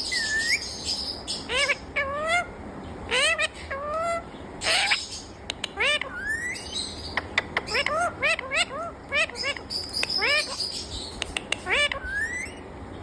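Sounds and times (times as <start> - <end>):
parrot whistled calls: 0.1 - 2.5, 5.8 - 7.0, 11.5 - 12.6
parrot screech: 11.7 - 12.6.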